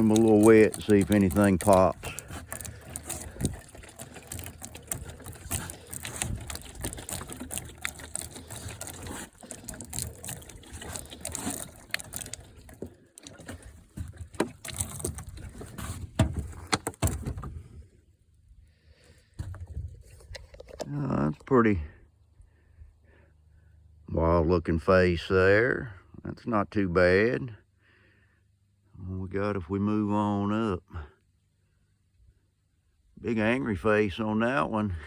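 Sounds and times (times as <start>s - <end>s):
water splashing on wooden boards: 0.0s - 17.7s.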